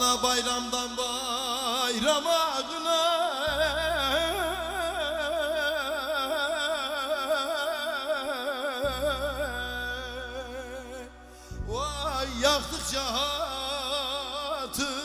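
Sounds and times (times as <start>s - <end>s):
man singing long vibrato note: 0.0s - 15.0s
steady low drone: 3.2s - 15.0s.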